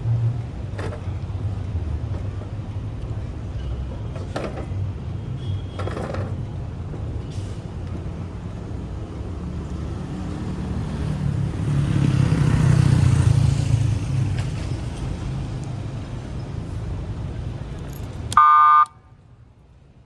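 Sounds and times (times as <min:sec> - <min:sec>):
street traffic road noise: 0:00.0 - 0:20.0.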